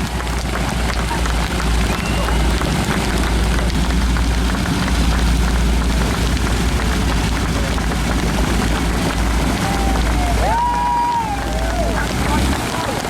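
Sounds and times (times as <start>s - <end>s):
propeller aircraft drone: 0.0s - 10.3s
wind buffeting microphone: 0.0s - 13.0s.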